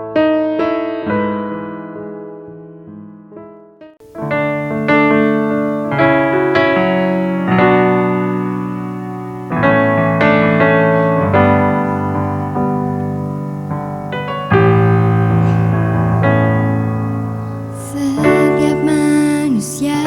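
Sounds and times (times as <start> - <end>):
keyboard playing sustained chords: 4.0 - 20.0.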